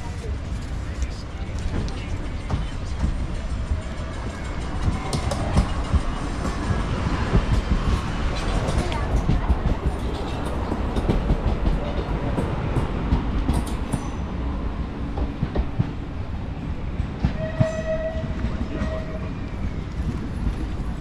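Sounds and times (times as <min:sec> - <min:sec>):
train rumbling: 0:00.0 - 0:21.0
train horn blasts: 0:17.3 - 0:19.4.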